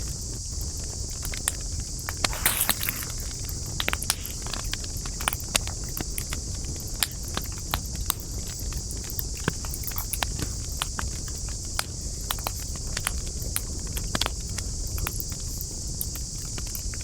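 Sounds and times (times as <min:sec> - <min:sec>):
low rumble of burning: 0:00.2 - 0:16.8
wood fire crackling: 0:02.2 - 0:04.9.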